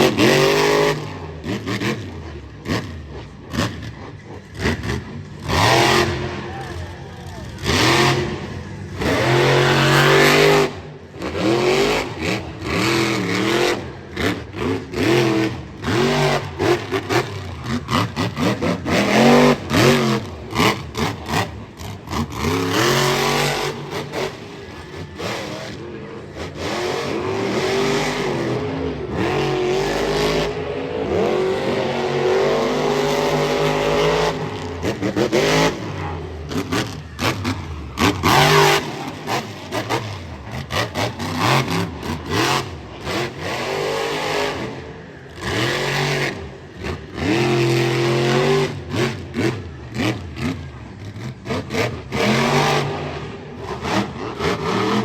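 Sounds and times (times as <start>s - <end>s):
truck engine revving: 0.0s - 55.0s.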